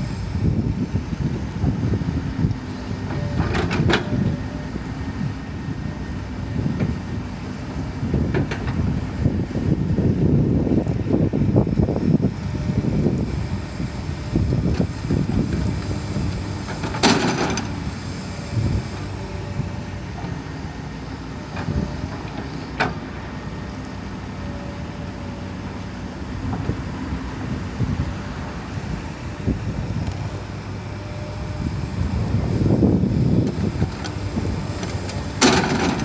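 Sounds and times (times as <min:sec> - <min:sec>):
excavator diesel engine: 0:00.0 - 0:36.0.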